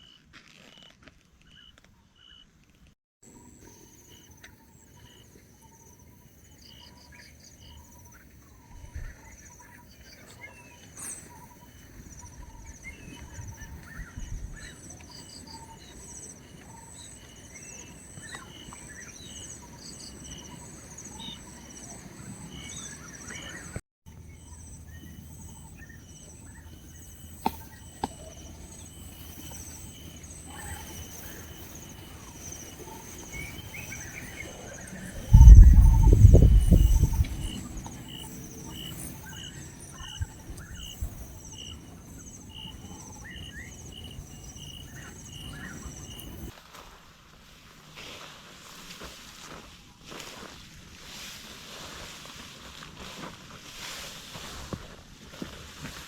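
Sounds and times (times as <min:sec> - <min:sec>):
insects trilling: 0:03.3 - 0:46.5
low rumble: 0:34.7 - 0:37.9.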